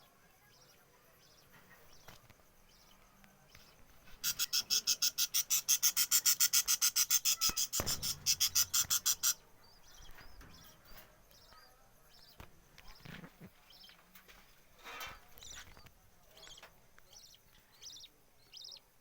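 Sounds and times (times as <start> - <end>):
soft budgie chatter: 0.5 - 14.0
budgerigars chirping: 4.2 - 10.8
dull thump: 7.8 - 8.7.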